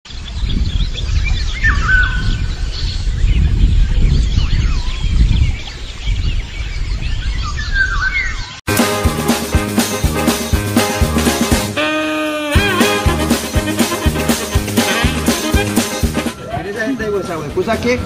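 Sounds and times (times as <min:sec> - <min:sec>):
birds chirping and calling: 0:00.1 - 0:08.6.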